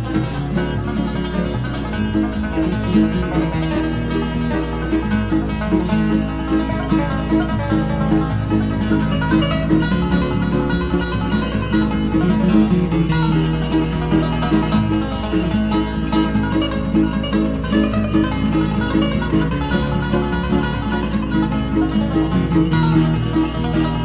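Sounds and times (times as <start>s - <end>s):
guitar: 0.0s - 24.0s
mandolin: 0.0s - 24.0s
picked banjo: 0.0s - 24.0s
steady bass line: 0.0s - 24.0s.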